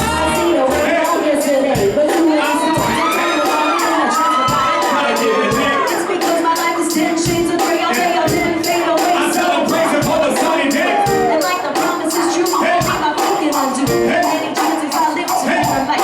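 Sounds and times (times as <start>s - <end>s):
guitar: 0.0s - 1.0s
bass: 0.0s - 1.2s
trombone: 0.0s - 1.4s
drums and cymbals: 0.0s - 16.0s.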